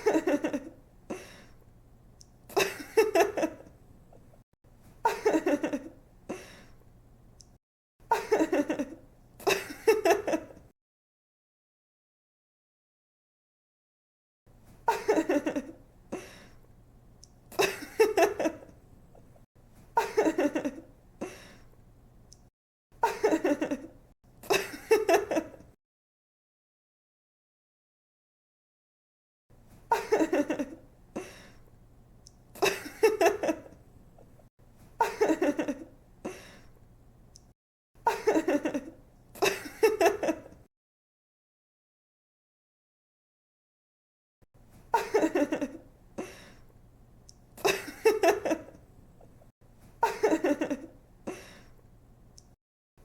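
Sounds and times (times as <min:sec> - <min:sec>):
young woman giggling: 0:00.0 - 0:01.3, 0:02.5 - 0:03.7, 0:05.0 - 0:06.6, 0:08.1 - 0:10.6, 0:14.9 - 0:15.8, 0:29.9 - 0:31.3, 0:35.0 - 0:35.9, 0:38.1 - 0:40.6, 0:45.0 - 0:45.8, 0:47.6 - 0:48.8, 0:50.0 - 0:51.5.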